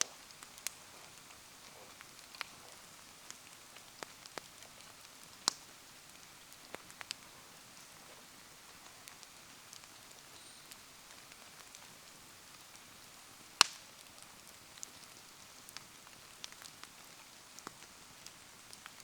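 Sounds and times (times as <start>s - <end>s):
bonfire ticks and crackles: 0.0s - 19.0s
soft hiss of rain: 0.0s - 19.0s.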